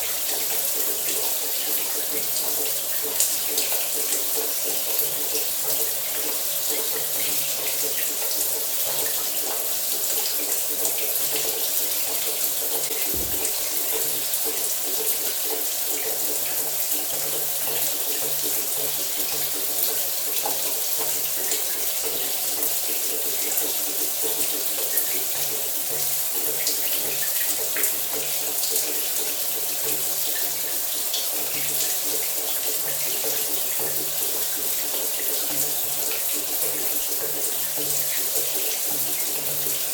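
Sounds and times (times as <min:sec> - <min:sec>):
shower water spray hiss: 0:13.0 - 0:14.1.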